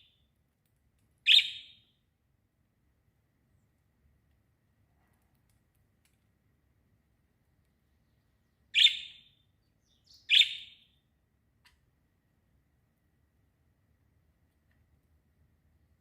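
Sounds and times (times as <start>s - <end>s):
small bird chirping: 1.2s - 2.0s, 7.6s - 11.1s.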